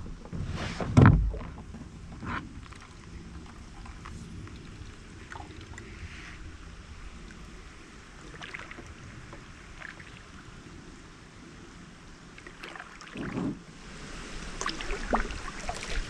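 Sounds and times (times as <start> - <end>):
low water noise: 0.0 - 16.0
dull bump: 0.2 - 2.4.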